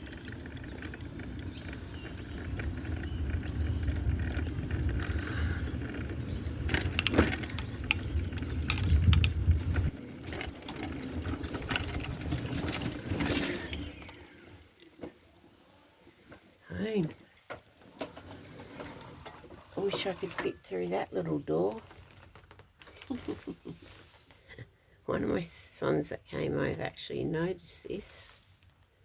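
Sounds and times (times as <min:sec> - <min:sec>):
vehicle rumbling slowly: 0:00.0 - 0:14.8.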